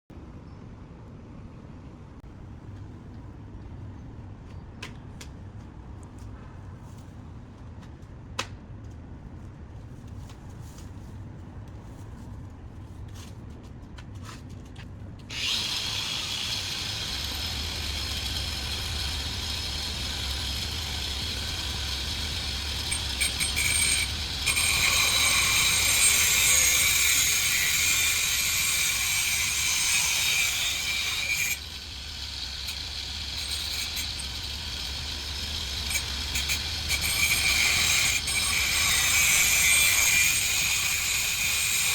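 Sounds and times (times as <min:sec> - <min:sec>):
angle grinder grinding: 0:15.3 - 0:41.9.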